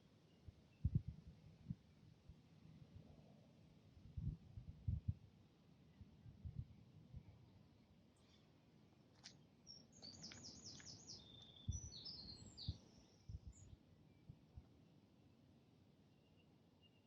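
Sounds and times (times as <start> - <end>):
songbird singing faintly: 0.0 - 2.4, 5.8 - 17.0.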